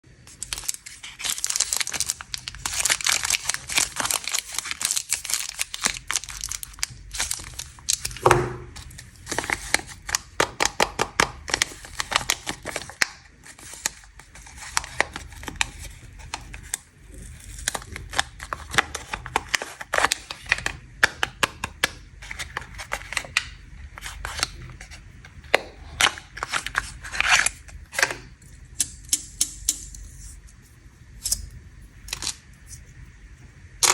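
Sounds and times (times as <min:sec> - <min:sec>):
plastic wrappers crinkling: 0:00.2 - 0:28.9.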